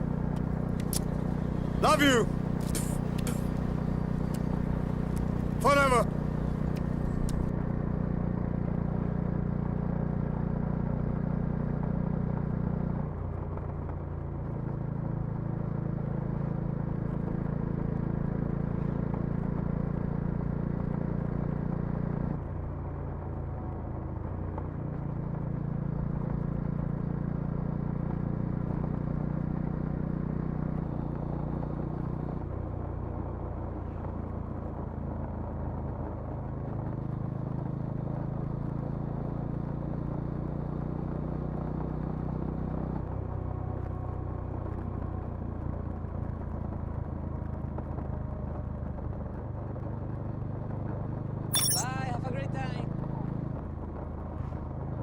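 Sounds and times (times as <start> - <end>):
motorcycle engine and exhaust: 0.0 - 15.3, 51.5 - 52.1.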